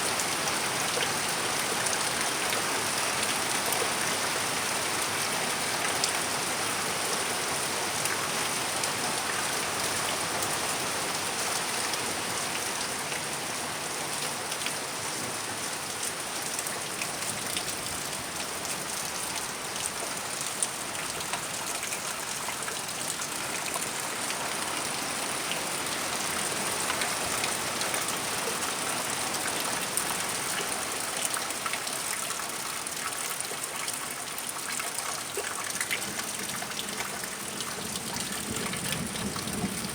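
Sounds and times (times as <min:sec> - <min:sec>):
steady rain falling: 0:00.0 - 0:39.9
raindrops ticking nearby: 0:15.8 - 0:39.9.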